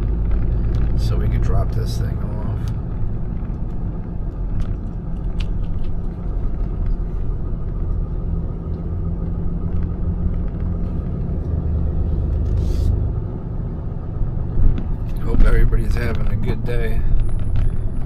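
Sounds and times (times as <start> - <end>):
truck engine and road rumble: 0.0 - 18.0.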